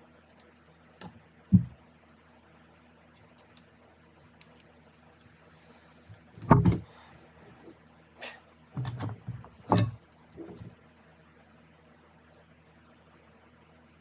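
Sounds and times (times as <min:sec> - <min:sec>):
metal parts and tools clunking: 0:06.4 - 0:06.9, 0:08.8 - 0:10.8.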